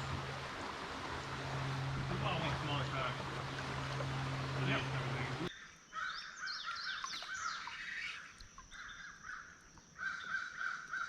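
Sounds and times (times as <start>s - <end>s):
rush of noise with low hum: 0.0s - 5.5s
birds singing and chirping: 0.0s - 11.0s.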